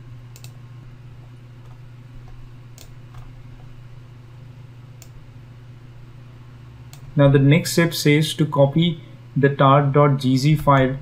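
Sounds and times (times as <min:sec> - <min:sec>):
low electrical hum: 0:00.0 - 0:11.0
computer mouse clicks: 0:00.3 - 0:00.6, 0:01.6 - 0:03.7.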